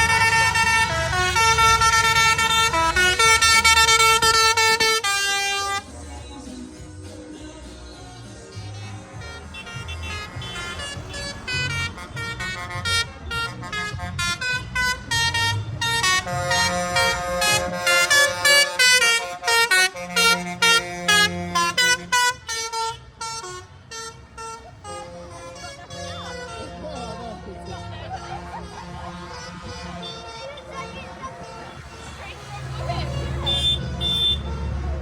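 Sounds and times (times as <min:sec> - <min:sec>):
vehicle horns playing a tune: 0:00.0 - 0:06.1, 0:08.3 - 0:35.0
tractor engines rumbling: 0:00.0 - 0:35.0.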